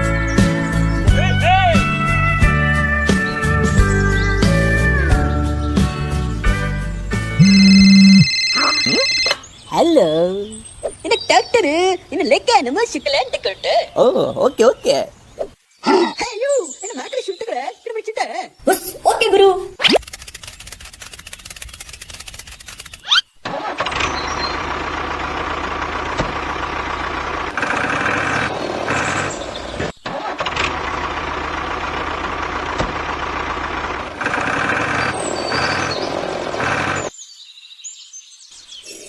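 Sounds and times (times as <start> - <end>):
tractor engine starter cranking: 20.0 - 29.2, 30.0 - 36.0
tractor engine running: 23.6 - 37.1.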